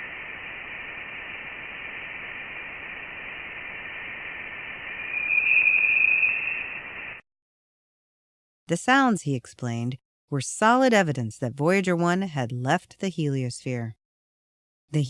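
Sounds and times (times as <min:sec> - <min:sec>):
steady hiss: 0:00.0 - 0:07.2.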